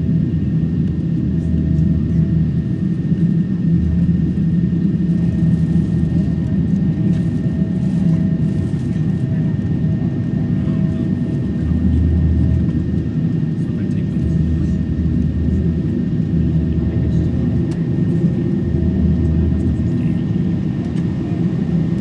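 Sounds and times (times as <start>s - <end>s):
aircraft cabin rumble: 0.0s - 22.0s
faint steady hums: 0.1s - 22.0s.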